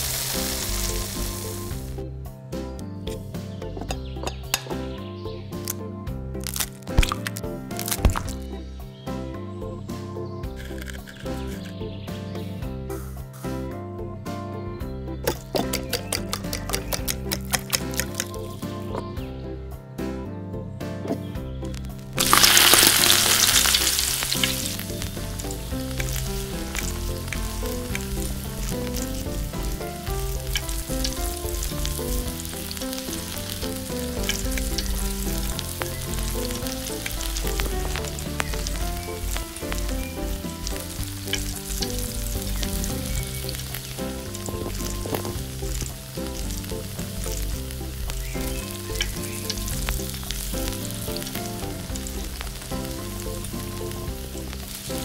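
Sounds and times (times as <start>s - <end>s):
food sizzling in oil: 0.0s - 2.0s, 21.7s - 55.0s
utensil clicks stirring: 10.6s - 11.7s, 15.3s - 18.4s.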